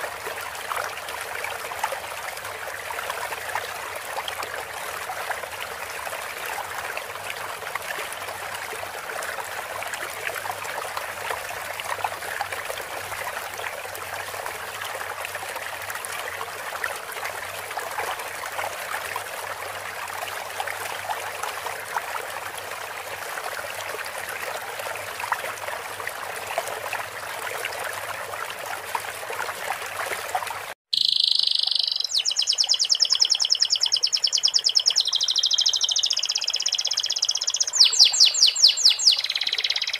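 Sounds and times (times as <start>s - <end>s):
babbling stream water: 0.0s - 39.9s
canary singing trills: 30.9s - 39.9s.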